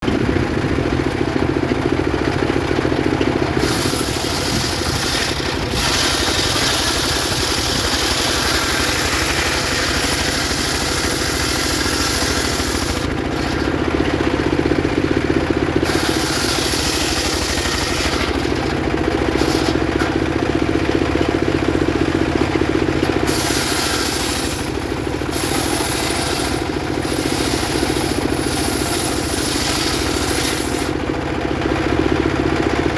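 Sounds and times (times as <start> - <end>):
engine drone: 0.0 - 32.9
saw blade hissing through wood: 3.6 - 13.7, 15.8 - 20.2, 23.1 - 31.0.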